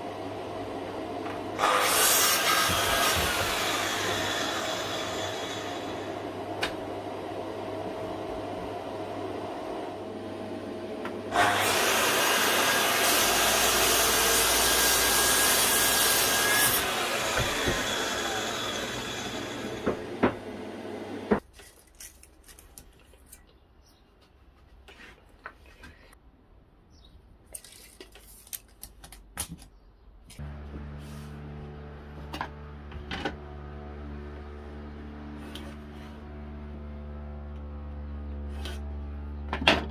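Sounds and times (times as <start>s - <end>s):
power saw cutting wood: 1.5s - 6.6s, 11.3s - 21.4s.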